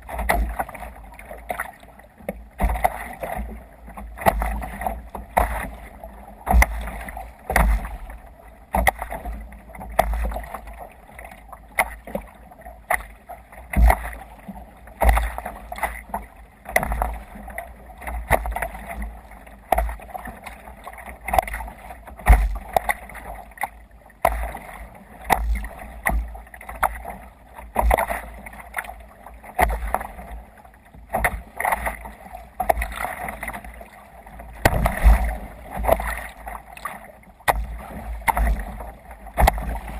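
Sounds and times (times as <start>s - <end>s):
water splashing around kayak: 0.0s - 39.9s
low thump: 34.6s - 35.4s.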